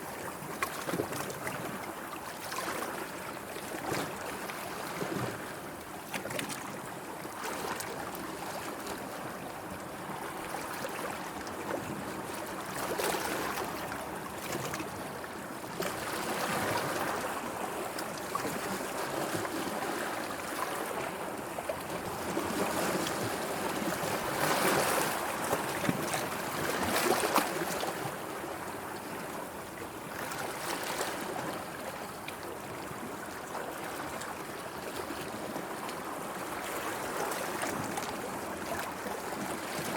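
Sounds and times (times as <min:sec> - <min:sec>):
sea water lapping: 0:10.0 - 0:39.9.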